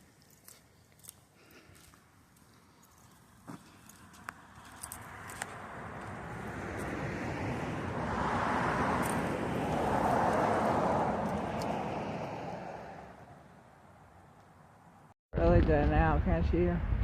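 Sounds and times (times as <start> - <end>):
road vehicle passing by: 2.6 - 15.1.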